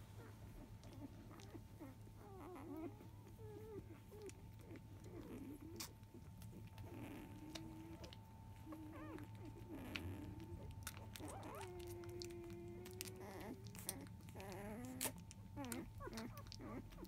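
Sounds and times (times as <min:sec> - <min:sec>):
puppies squeaking and whimpering: 0:00.2 - 0:17.0.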